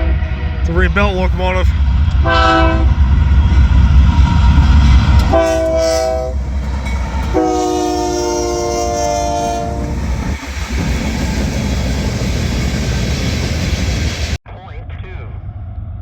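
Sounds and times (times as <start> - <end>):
locomotive air horn: 0.0 - 0.7, 2.2 - 3.0, 5.2 - 6.4, 7.2 - 10.0
rumble of passing train: 0.0 - 16.0.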